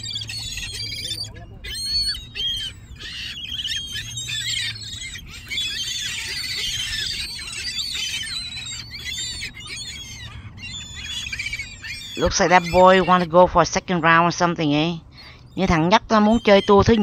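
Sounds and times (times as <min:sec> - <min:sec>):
gulls calling: 0:00.0 - 0:17.0.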